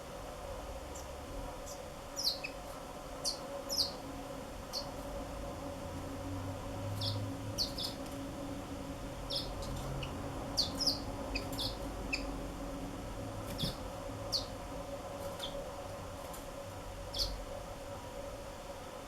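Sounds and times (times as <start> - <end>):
canaries chirping: 1.7 - 2.6, 3.2 - 4.0, 4.7 - 4.9, 7.0 - 8.0, 9.2 - 12.4, 13.5 - 14.6, 15.3 - 15.6, 17.1 - 17.4.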